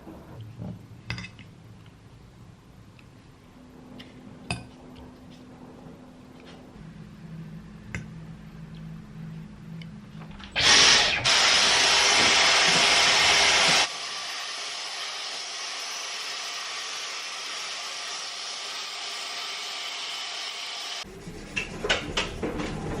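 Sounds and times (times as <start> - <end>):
electric blower rushing air: 10.6 - 21.0.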